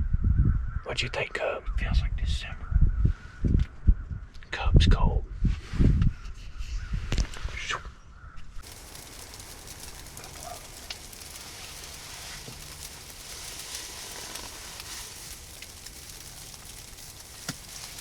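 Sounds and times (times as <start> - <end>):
light rain pattering: 8.6 - 18.0.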